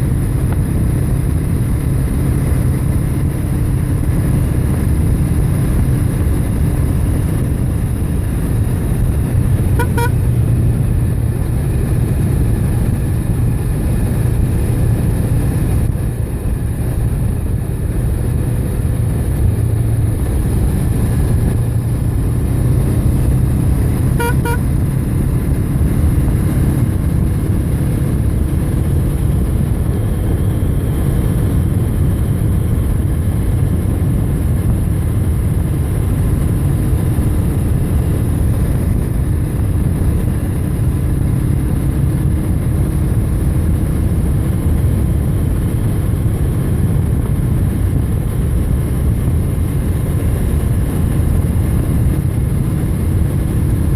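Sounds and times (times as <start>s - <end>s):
road rumble: 0.0s - 53.9s
wind: 0.0s - 53.9s
double beep: 9.8s - 10.2s, 24.2s - 24.6s.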